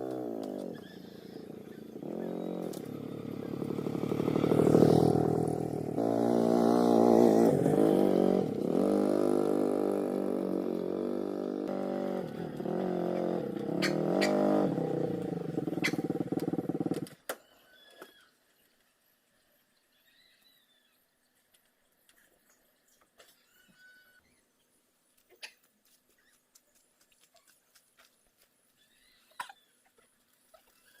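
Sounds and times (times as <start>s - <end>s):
engine revving: 0.0s - 17.2s.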